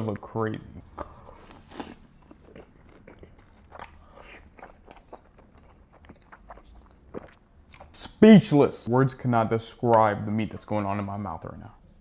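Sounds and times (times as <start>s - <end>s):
person chewing food: 0.8s - 8.0s.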